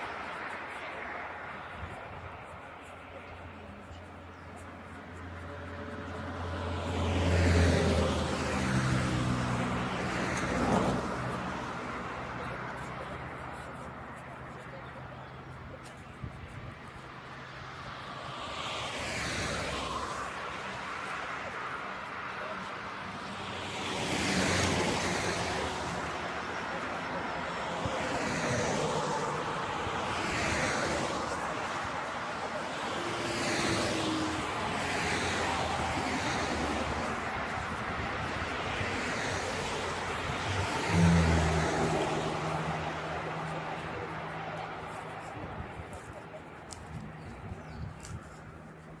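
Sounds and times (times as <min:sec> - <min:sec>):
vehicles passing by: 0:00.0 - 0:49.0
motor vehicle passing: 0:28.1 - 0:49.0.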